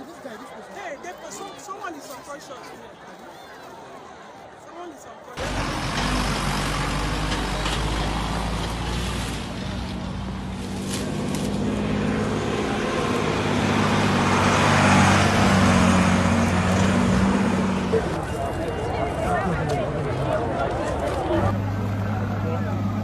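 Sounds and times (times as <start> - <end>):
large vehicle engine running: 5.4 - 23.0.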